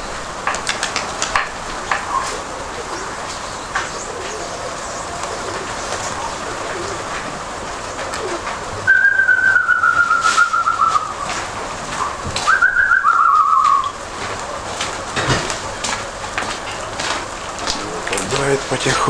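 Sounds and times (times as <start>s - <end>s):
trilled whistles sliding down: 8.9s - 11.1s.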